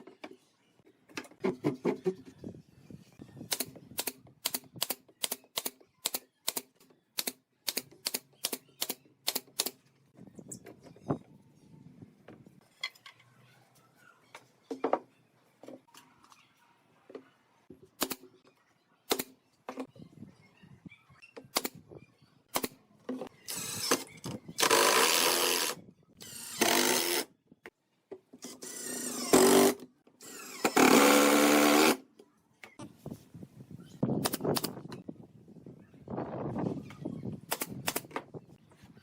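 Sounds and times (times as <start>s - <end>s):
handheld power tool running: 28.6s - 32.0s.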